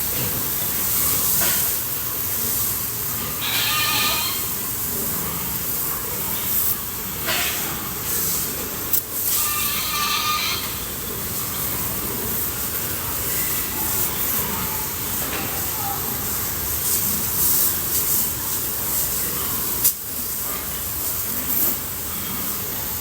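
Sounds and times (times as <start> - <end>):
water spraying from hose: 0.0 - 23.0
pig calls: 3.3 - 6.7, 9.2 - 11.0.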